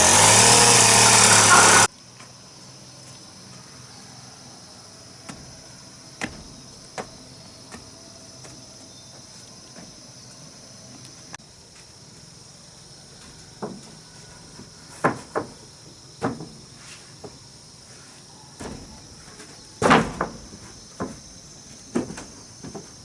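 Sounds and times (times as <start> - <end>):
chainsaw at high revs: 0.0 - 1.9
insects chirring: 0.0 - 23.0.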